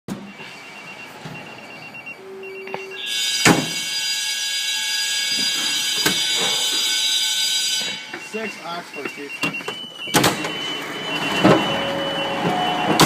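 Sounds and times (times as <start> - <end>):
short high beeps: 0.3 - 3.5, 7.7 - 13.0
steady alert tone: 7.8 - 13.0.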